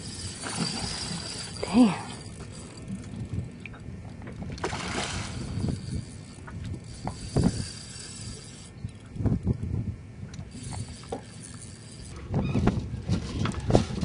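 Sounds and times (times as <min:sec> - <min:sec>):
water sloshing: 0:00.4 - 0:05.8.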